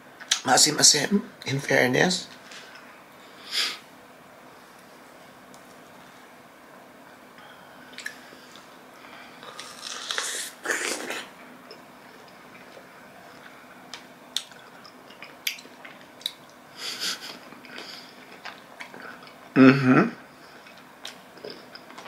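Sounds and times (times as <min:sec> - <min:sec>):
person chewing strawberry: 0:07.9 - 0:16.6, 0:17.2 - 0:19.6, 0:20.4 - 0:22.0.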